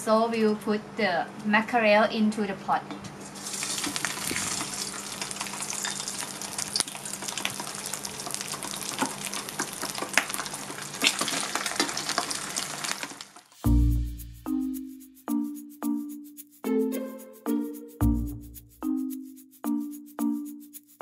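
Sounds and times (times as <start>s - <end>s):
fish sizzling in hot oil: 3.2s - 13.7s.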